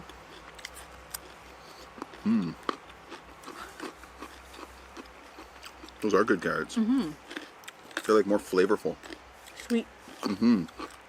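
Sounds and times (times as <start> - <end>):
person chewing crunchy vegetables: 0.0 - 11.0
person humming mm: 2.2 - 2.6, 10.3 - 10.7.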